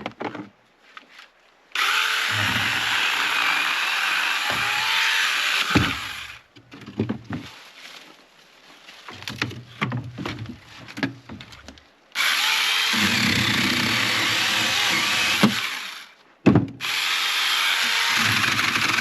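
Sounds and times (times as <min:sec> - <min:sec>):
power saw cutting wood: 0:01.8 - 0:06.4, 0:12.2 - 0:16.2, 0:16.8 - 0:19.0.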